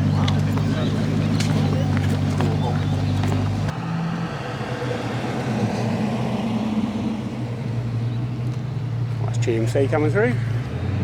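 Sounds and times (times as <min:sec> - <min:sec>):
car engines rumbling past: 0:00.0 - 0:11.0.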